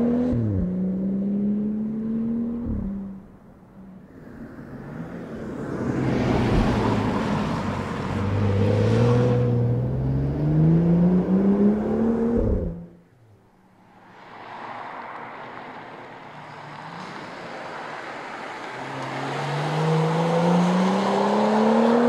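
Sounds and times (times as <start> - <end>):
car engine accelerating: 0.0 - 3.4, 5.6 - 13.0, 16.3 - 22.0
tyre and road noise: 0.0 - 22.0.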